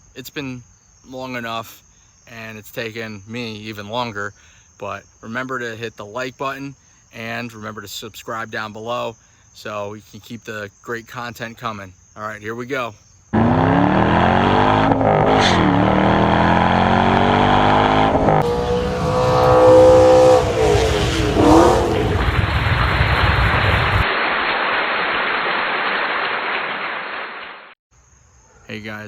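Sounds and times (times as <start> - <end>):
car engine revving: 13.4 - 24.0
steady rushing noise: 18.2 - 26.0.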